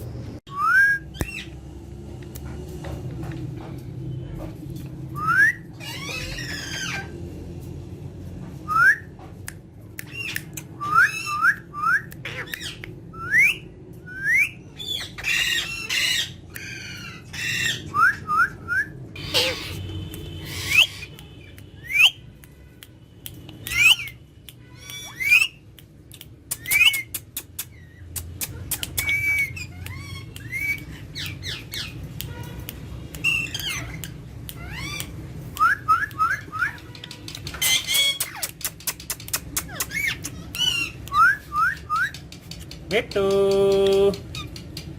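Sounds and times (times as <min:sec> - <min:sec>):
parrots whistling chirps: 0:05.2 - 0:07.2, 0:10.0 - 0:22.2, 0:23.6 - 0:25.6, 0:26.5 - 0:32.1, 0:33.2 - 0:42.2, 0:44.3 - 0:44.9
parrot squawks: 0:05.8 - 0:07.2, 0:10.1 - 0:12.8, 0:14.8 - 0:18.2, 0:19.2 - 0:22.2, 0:23.7 - 0:25.6, 0:27.7 - 0:32.0, 0:33.2 - 0:38.6, 0:39.6 - 0:42.1
sharp clicks: 0:29.8 - 0:44.9.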